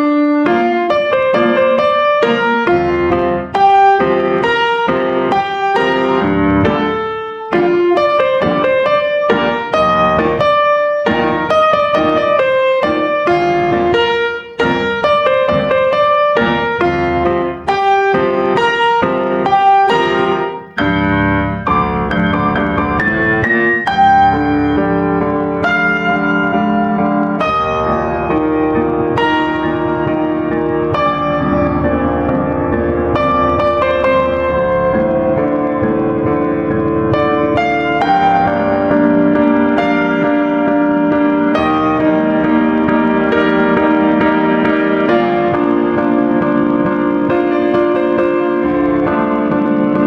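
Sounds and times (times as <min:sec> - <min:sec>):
solo piano music: 0:00.0 - 0:50.0.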